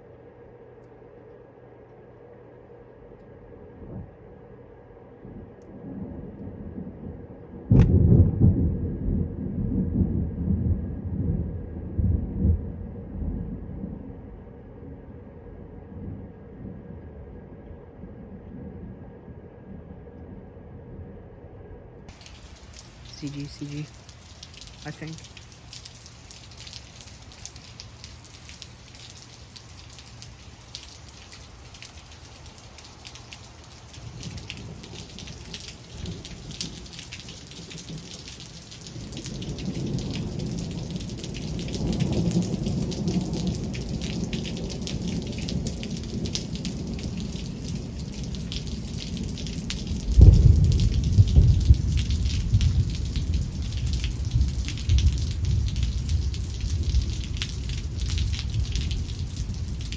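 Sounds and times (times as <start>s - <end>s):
steady rain: 0.0s - 18.6s, 22.1s - 59.9s
thunder rumble: 3.6s - 59.9s
loud thunder crash: 7.7s - 13.5s, 50.2s - 53.2s.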